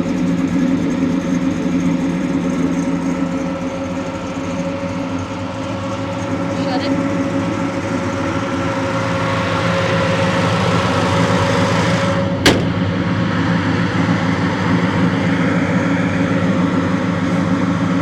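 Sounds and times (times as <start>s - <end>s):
car engine idling: 0.0s - 18.0s
sharp slam: 12.4s - 13.1s.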